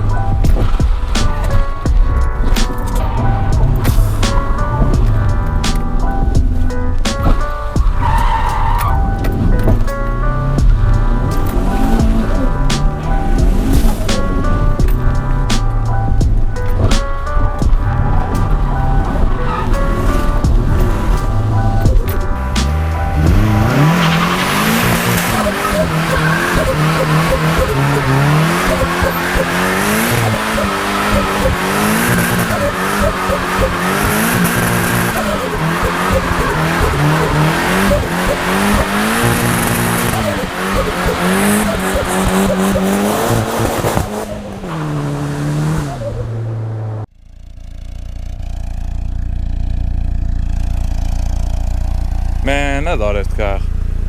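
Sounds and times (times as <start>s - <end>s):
car engine revving: 0.0s - 54.0s
tyres squealing: 17.0s - 46.8s.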